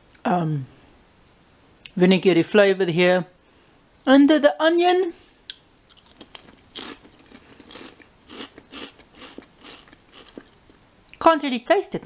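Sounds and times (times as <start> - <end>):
person chewing crunchy chips: 5.5 - 10.8.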